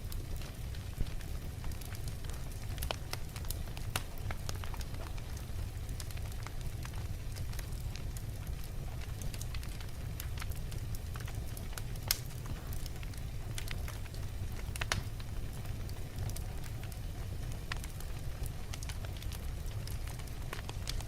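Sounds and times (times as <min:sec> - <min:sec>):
fire crackles and pops: 0:00.0 - 0:21.0
wood fire burning: 0:00.0 - 0:21.0.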